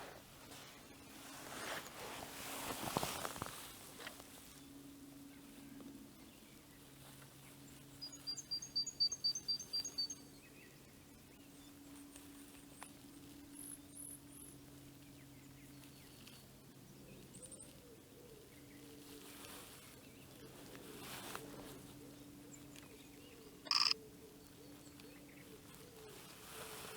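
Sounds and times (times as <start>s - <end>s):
faint very high bird calls: 8.0s - 10.3s, 21.9s - 26.9s.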